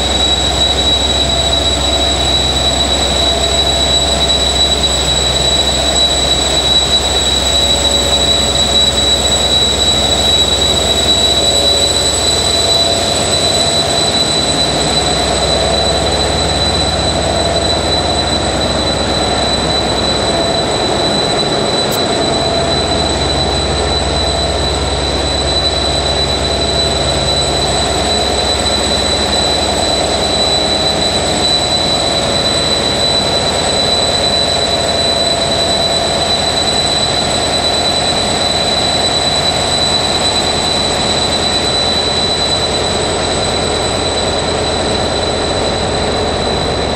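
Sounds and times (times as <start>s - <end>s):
diesel locomotive engine idling: 0.0s - 35.9s
high turbocharger whistle: 0.0s - 46.9s.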